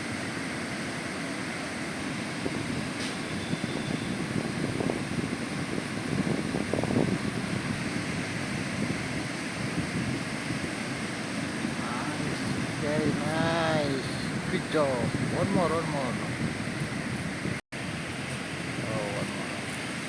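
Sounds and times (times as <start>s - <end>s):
wind: 0.0s - 20.0s
ocean surf breaking: 4.6s - 20.0s.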